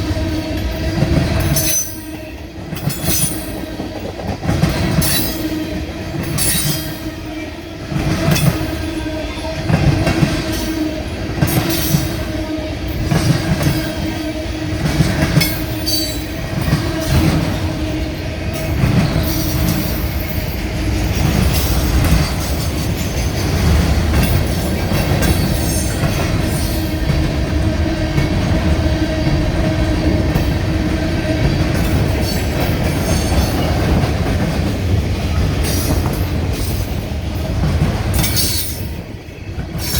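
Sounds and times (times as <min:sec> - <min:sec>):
deep train rumble: 0:00.0 - 0:39.9
train wheels squealing: 0:01.4 - 0:04.1, 0:04.7 - 0:07.5, 0:15.2 - 0:17.6, 0:18.5 - 0:26.9, 0:31.5 - 0:33.9, 0:38.1 - 0:39.9.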